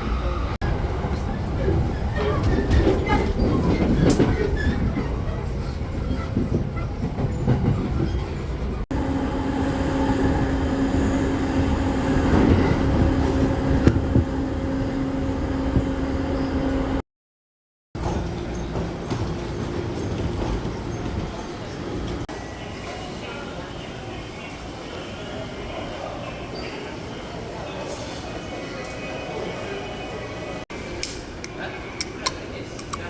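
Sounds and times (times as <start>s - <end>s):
train rumbling and rattling: 0.0s - 17.0s, 18.0s - 23.6s.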